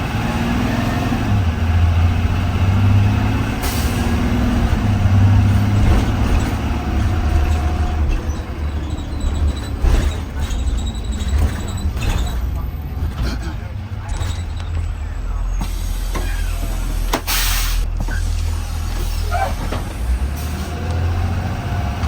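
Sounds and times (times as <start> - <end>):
bus engine droning: 0.0 - 22.0
knocks and rattles: 5.2 - 17.3
short sharp hiss of air: 17.2 - 17.9.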